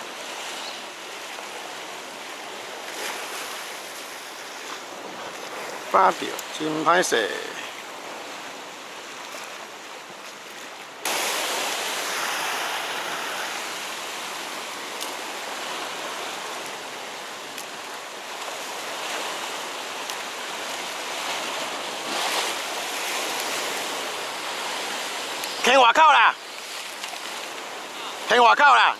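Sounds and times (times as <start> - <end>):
waves washing on rocky shore: 0.0 - 28.9.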